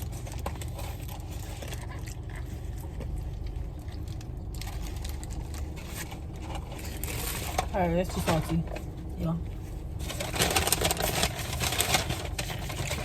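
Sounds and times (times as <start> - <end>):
person chewing crunchy food: 0.0 - 7.7
steady low hum: 0.0 - 13.0.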